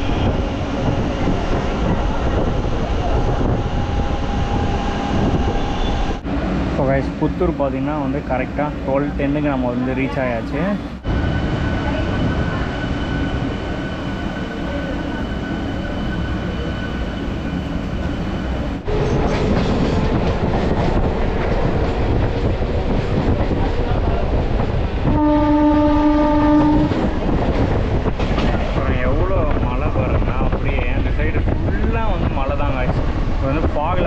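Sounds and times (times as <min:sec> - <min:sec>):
train rumbling along track: 0:00.0 - 0:34.0
train horn blast: 0:25.1 - 0:27.1.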